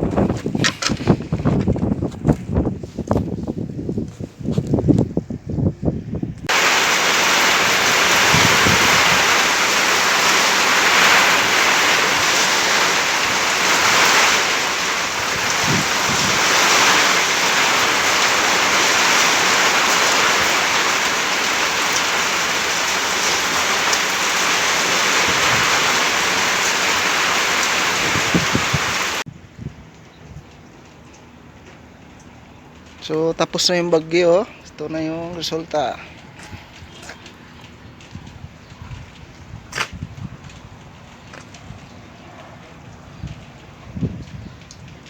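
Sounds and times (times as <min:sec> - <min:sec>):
heavy rain pouring: 0:06.4 - 0:29.3.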